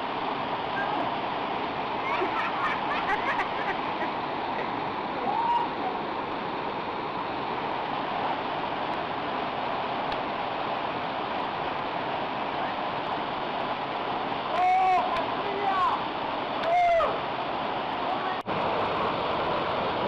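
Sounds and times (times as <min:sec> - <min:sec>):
waterfall pouring into a pool: 0:04.8 - 0:20.0.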